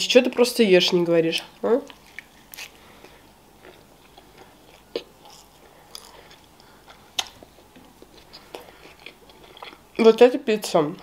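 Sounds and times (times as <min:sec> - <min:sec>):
chewing with mouth closed: 0:01.9 - 0:09.8.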